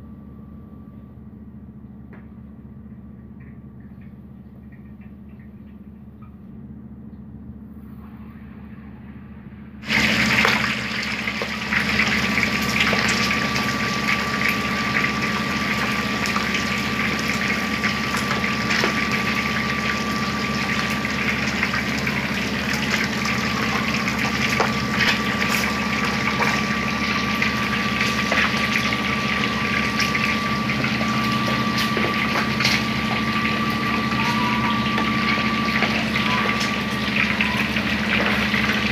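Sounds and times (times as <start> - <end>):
steady low hum: 0.0 - 38.9
chicken sizzling in hot oil: 9.8 - 38.9.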